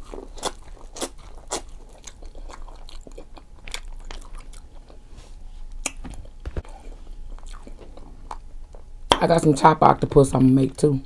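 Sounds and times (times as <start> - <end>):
person chewing and biting: 0.0 - 5.0, 5.6 - 8.9.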